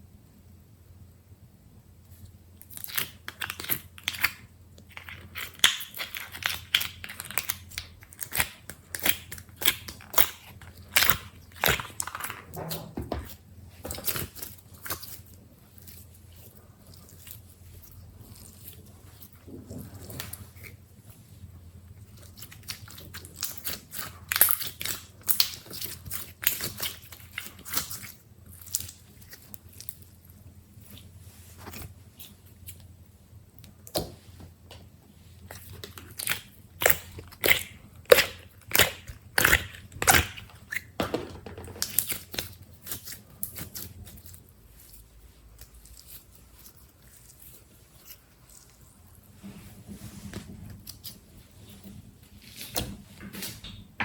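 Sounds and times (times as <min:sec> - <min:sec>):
slime squishing: 0:02.2 - 0:53.6
slime popping and crackling: 0:02.6 - 0:13.4, 0:22.2 - 0:30.2, 0:35.6 - 0:41.0, 0:41.8 - 0:44.9.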